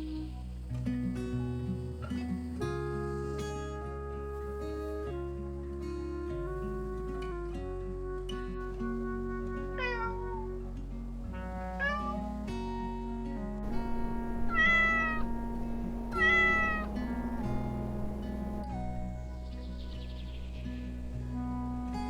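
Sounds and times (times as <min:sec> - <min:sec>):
acoustic guitar music: 0:00.0 - 0:22.0
cat meowing: 0:09.8 - 0:10.4, 0:11.8 - 0:12.1, 0:13.7 - 0:18.6.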